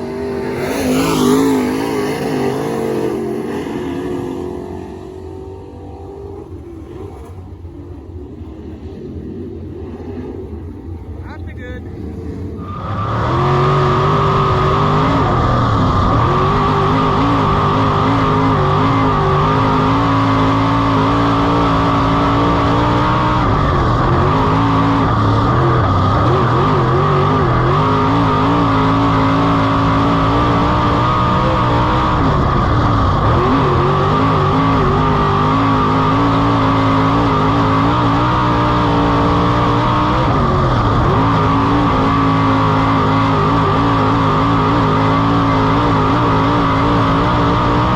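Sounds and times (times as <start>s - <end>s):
race car engine running hard: 0.0s - 47.9s.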